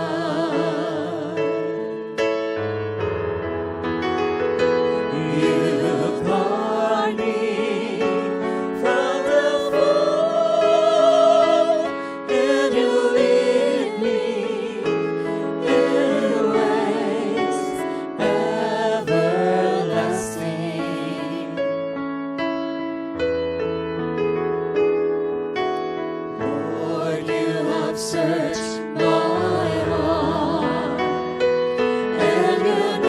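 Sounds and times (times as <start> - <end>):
keyboard accompaniment: 0.0 - 33.0
voices singing long notes: 5.1 - 21.5, 26.5 - 31.0, 32.1 - 33.0.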